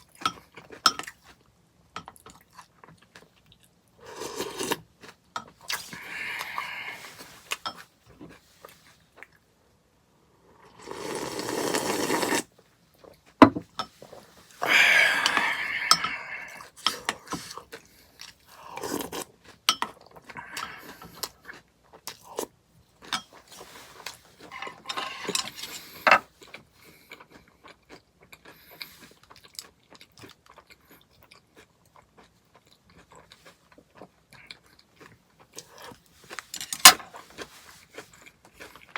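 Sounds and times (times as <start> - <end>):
chewing and crunching granola: 2.2 - 7.4, 16.9 - 24.5, 25.8 - 36.5, 37.1 - 38.9.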